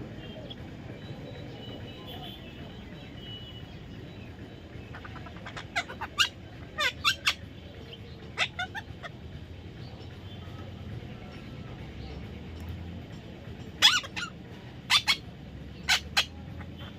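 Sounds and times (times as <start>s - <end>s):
parrot shrill calls: 4.9s - 7.4s, 8.4s - 9.1s, 13.8s - 14.3s, 14.9s - 15.2s, 15.8s - 16.3s.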